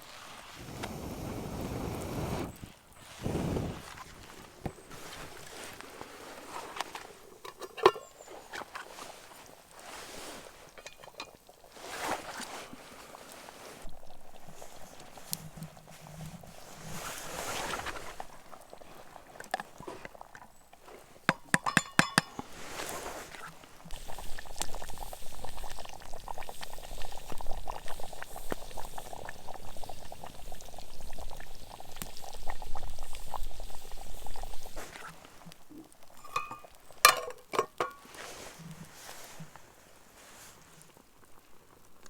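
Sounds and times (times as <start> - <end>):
metal cookware clinking: 7.4 - 8.3, 21.3 - 22.4, 36.2 - 38.1
liquid pouring: 35.9 - 38.0.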